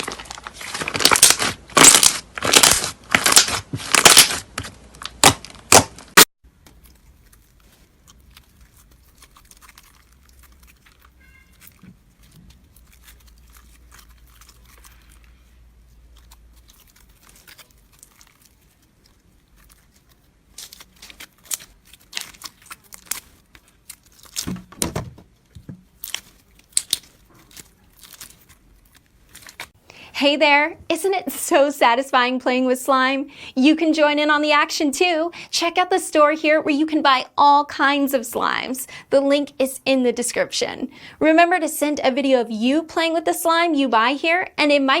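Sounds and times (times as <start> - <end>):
slime crackling and popping: 0.0 - 15.4, 16.0 - 24.6, 25.9 - 29.8.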